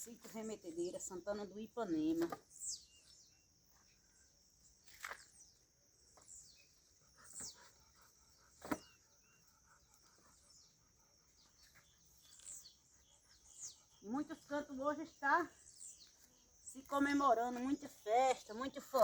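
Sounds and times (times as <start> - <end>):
high insect hum: 0.0 - 19.0.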